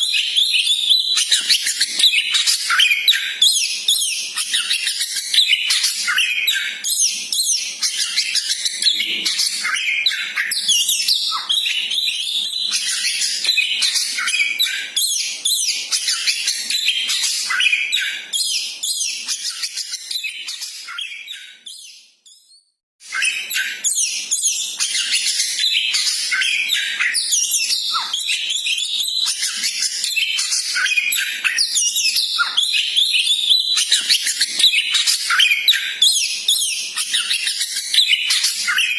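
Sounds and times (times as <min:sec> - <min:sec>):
bird chirping and trilling: 0:00.0 - 0:38.9.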